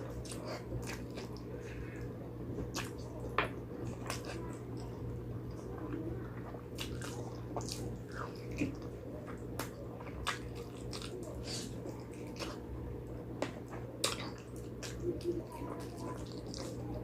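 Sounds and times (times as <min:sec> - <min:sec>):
wet chewing and mouth smacking: 0:03.9 - 0:12.6, 0:13.7 - 0:16.9.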